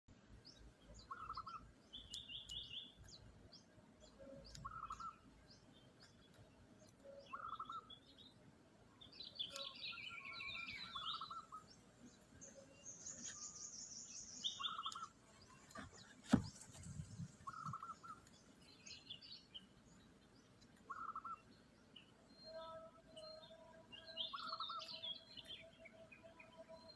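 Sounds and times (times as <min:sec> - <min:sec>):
bird chirps: 0:00.4 - 0:08.4, 0:09.0 - 0:26.9
high bird trill: 0:07.2 - 0:08.1, 0:09.4 - 0:11.7, 0:12.5 - 0:15.2, 0:17.3 - 0:18.2.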